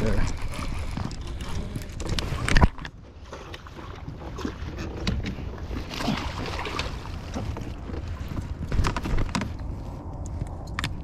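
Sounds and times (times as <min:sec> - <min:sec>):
steady low rumble: 0:05.5 - 0:11.0.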